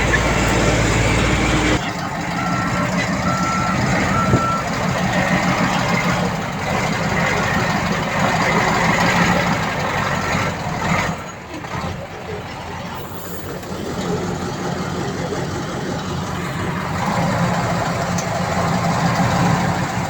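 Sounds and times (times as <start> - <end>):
reversing alarm beeping: 0.0 - 4.8
diesel engine running: 0.0 - 20.0.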